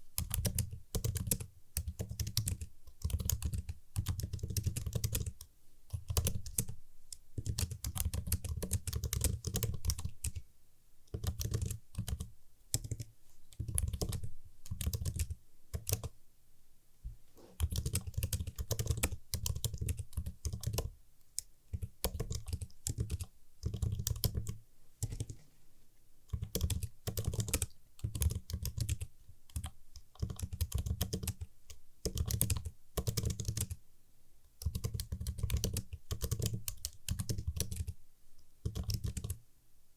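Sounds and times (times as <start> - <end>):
keyboard typing: 0.2 - 10.4, 11.1 - 16.1, 17.6 - 25.4, 26.3 - 33.8, 34.6 - 38.0, 38.6 - 39.4.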